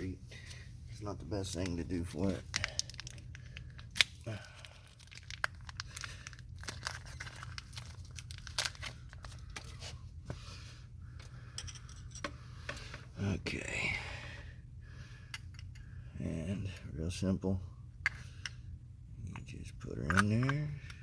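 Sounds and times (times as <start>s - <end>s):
low steady hum: 0.0s - 21.0s
packaging crinkling: 2.2s - 9.8s.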